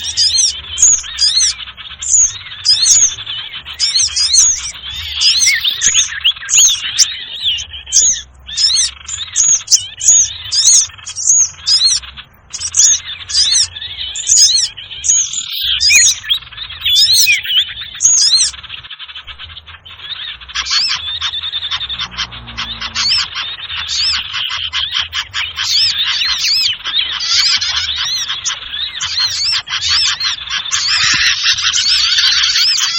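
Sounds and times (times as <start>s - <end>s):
small birds chirping chorus: 0.0s - 32.9s.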